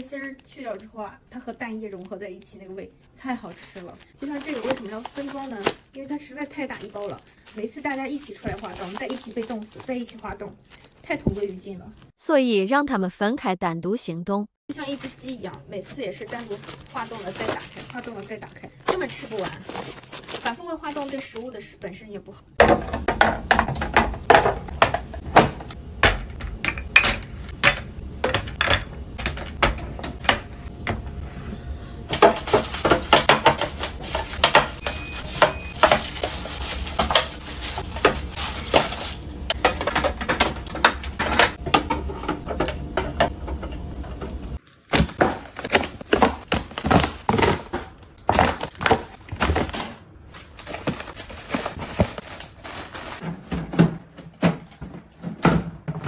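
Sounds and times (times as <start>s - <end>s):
dishes and utensils clinking: 26.5s - 29.6s, 32.1s - 43.8s.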